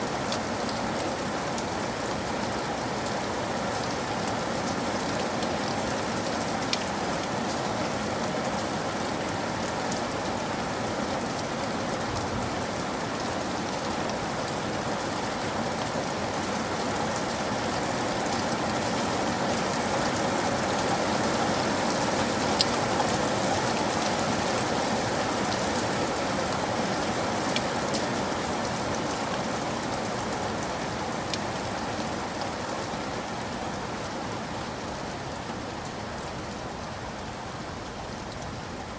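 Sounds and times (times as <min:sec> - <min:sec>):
rain hissing on surfaces: 0:00.0 - 0:38.9.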